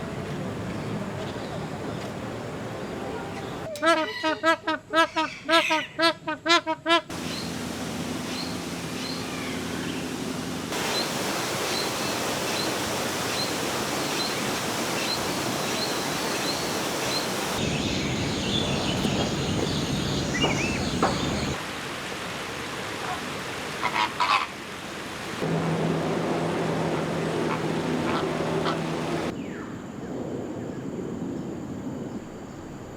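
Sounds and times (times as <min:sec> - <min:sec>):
birds calling and chirping: 0:07.1 - 0:21.6
steady rushing noise: 0:25.4 - 0:29.4.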